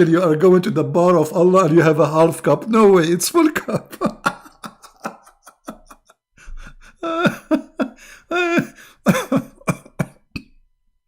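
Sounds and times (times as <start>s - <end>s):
man's cough-like vocal bursts: 9.0s - 10.5s.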